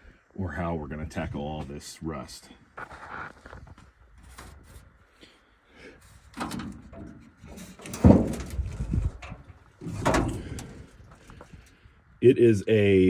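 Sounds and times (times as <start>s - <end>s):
metal clunks and clatter: 6.3s - 11.7s
low rattling: 6.3s - 11.8s
heavy thump: 7.9s - 10.9s.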